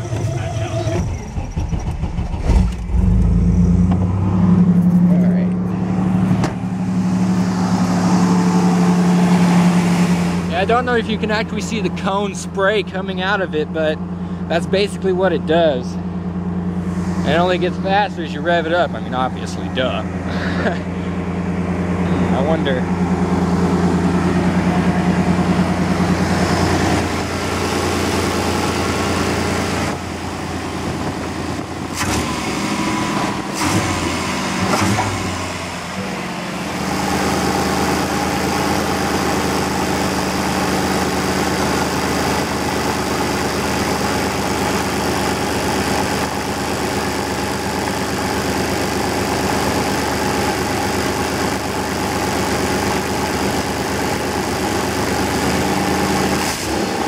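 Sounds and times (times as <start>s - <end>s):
engine knocks: 0.0s - 7.0s
truck engine idling: 0.0s - 57.0s.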